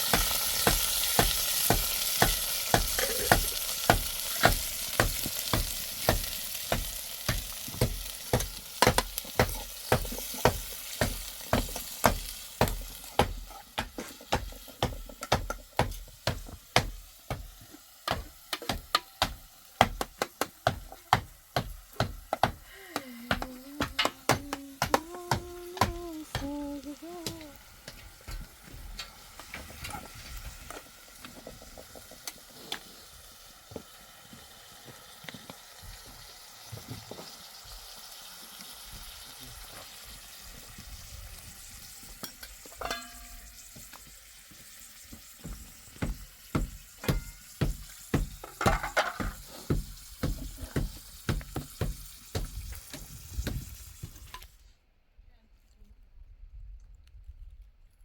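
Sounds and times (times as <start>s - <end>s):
food sizzling in a pan: 0.0s - 54.6s
utensil knocking against pan: 0.7s - 22.6s, 23.3s - 26.5s, 46.0s - 53.6s.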